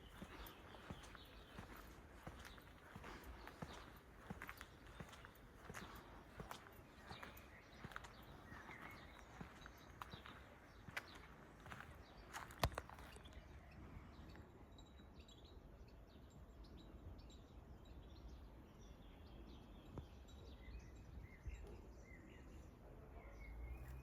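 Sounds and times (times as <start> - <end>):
faint outdoor ambience: 0.0 - 24.0
small birds chirping: 0.0 - 24.0.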